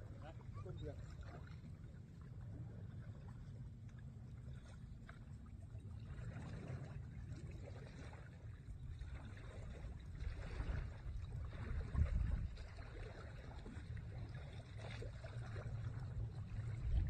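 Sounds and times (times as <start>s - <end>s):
water lapping and splashing: 0.0s - 17.0s
wind rumbling on microphone: 8.7s - 17.0s.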